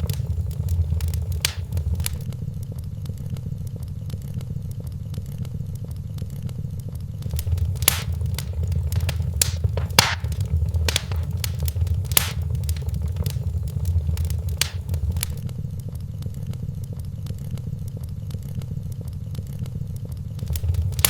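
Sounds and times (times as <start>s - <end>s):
fire popping sharply: 0.0s - 2.2s, 7.2s - 15.4s, 20.4s - 21.0s
wood fire crackling: 0.0s - 2.3s, 7.2s - 15.4s, 20.4s - 21.0s
low rumble of flames: 0.0s - 3.5s, 7.2s - 15.6s, 20.4s - 21.0s.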